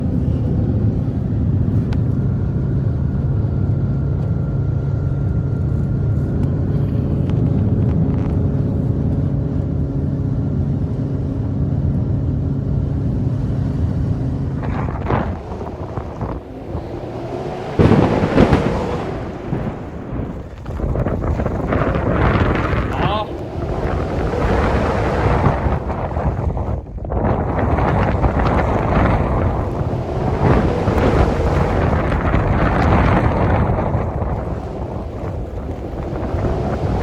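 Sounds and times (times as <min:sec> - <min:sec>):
motor humming: 0:13.0 - 0:37.0
loud rushing surges: 0:13.4 - 0:37.0.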